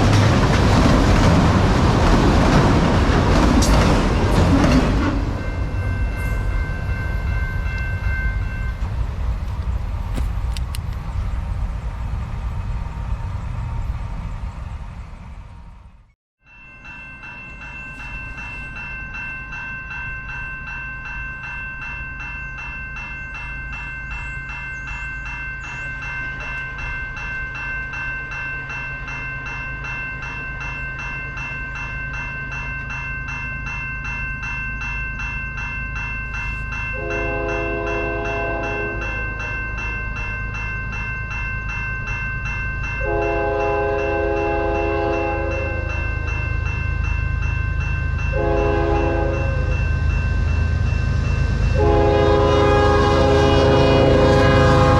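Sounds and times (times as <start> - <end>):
railway crossing bell ringing: 0.0 - 10.5, 16.4 - 54.9
train rumble: 0.0 - 16.2, 17.2 - 54.9
train horn blast: 37.0 - 39.3, 43.0 - 45.9, 48.3 - 49.8, 51.7 - 54.9.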